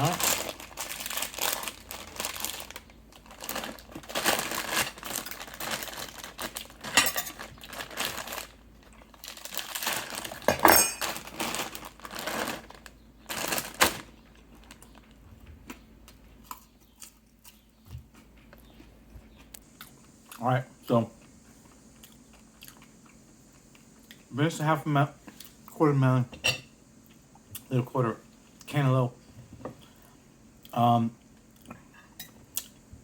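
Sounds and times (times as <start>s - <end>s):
bag of nuts rustling: 0.0s - 15.1s
utensil clinking on dishes: 6.9s - 7.4s, 10.5s - 11.1s.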